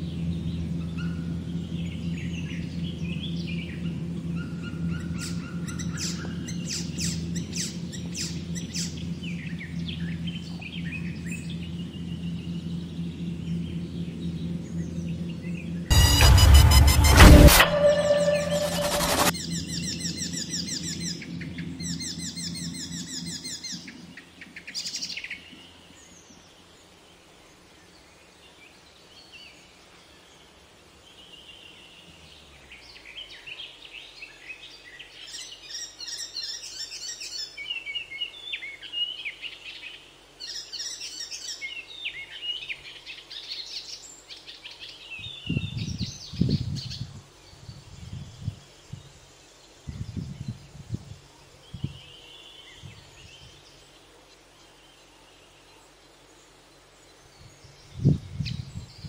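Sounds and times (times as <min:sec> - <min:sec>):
low thumps: 0:00.0 - 0:23.0
intro jingle: 0:00.0 - 0:24.4
birds chirping and calling: 0:00.2 - 0:15.6, 0:19.3 - 0:25.0
whoosh: 0:11.1 - 0:23.7.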